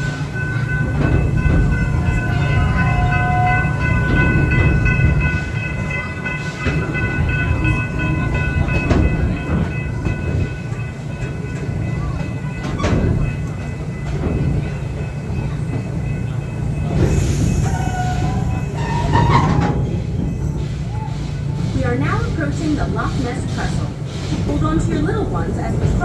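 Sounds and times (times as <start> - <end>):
train cars clicking and clanking: 0.0 - 26.0
train rumbling on track: 0.0 - 26.0
high wheel squeal: 17.0 - 21.6.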